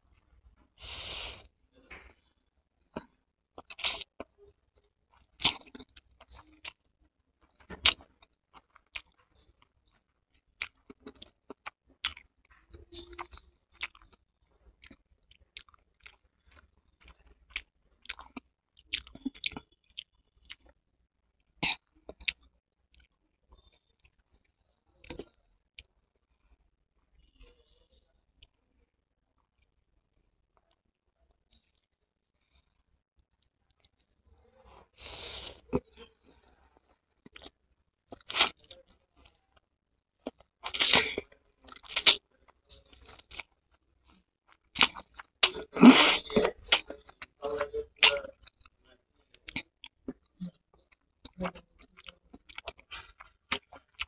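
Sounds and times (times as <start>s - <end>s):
person chewing noodles: 2.9s - 14.2s, 14.8s - 20.7s, 21.6s - 25.9s, 35.0s - 48.8s, 49.4s - 54.0s
slurp of noodles: 45.5s - 46.4s.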